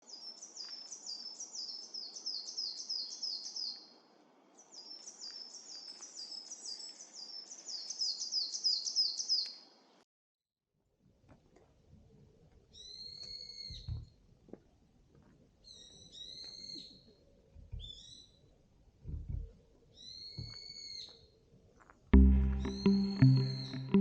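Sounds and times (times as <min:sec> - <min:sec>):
songbird high downslurred notes: 0:22.2 - 0:24.0.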